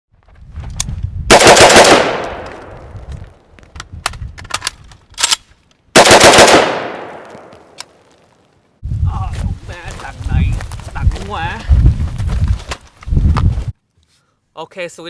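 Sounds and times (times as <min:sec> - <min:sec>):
automatic rifle bursts: 0:01.3 - 0:02.5, 0:06.0 - 0:07.3.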